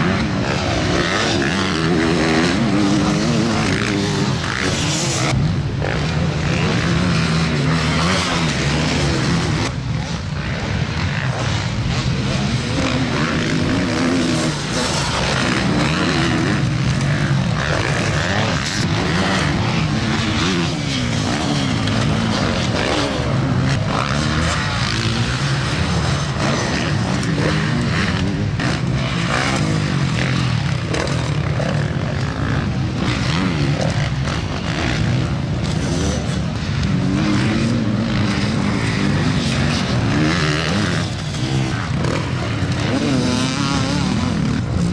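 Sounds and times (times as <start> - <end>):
motocross engines revving: 0.0 - 44.9.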